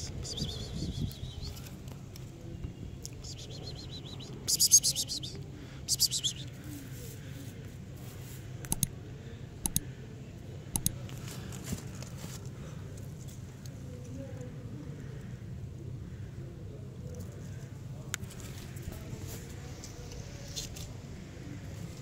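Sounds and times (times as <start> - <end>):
birds chirping: 0.0 - 1.7, 3.0 - 6.6
sharp clicks: 8.6 - 8.9, 9.6 - 9.8, 10.7 - 11.0.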